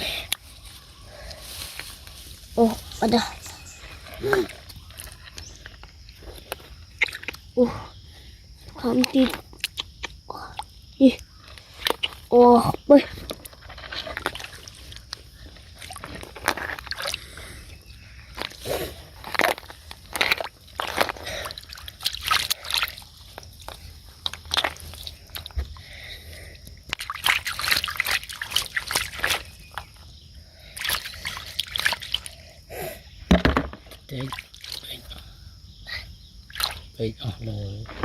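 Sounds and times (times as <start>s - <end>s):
shallow water sloshing and splashing: 13.4s - 25.8s, 26.9s - 30.1s, 30.7s - 32.4s, 33.6s - 35.0s.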